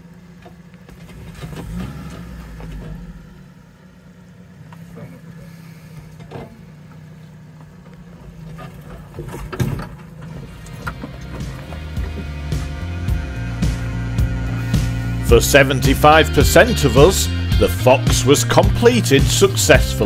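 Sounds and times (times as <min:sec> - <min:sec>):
car engine running at low revs: 0:00.0 - 0:20.0
knocks and thumps: 0:08.9 - 0:12.7.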